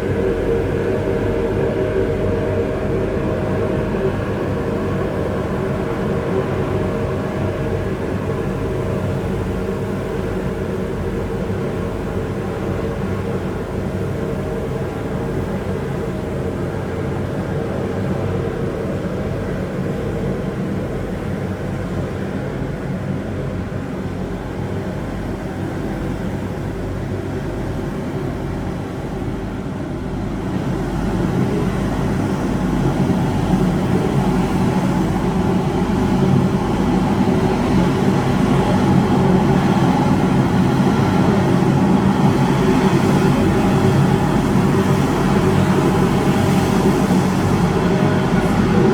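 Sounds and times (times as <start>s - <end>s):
road sweeper engine drone: 30.6s - 48.9s.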